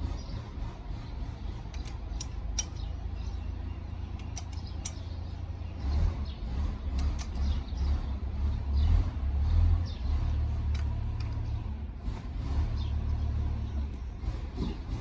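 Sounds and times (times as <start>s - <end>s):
sharp light clicks and taps: 1.7s - 2.9s, 4.1s - 5.0s, 10.7s - 11.4s.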